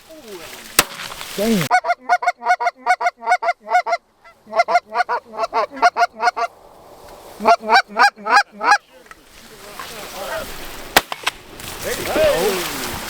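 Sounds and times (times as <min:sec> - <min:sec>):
goose honking: 0:01.4 - 0:06.5, 0:07.4 - 0:08.9.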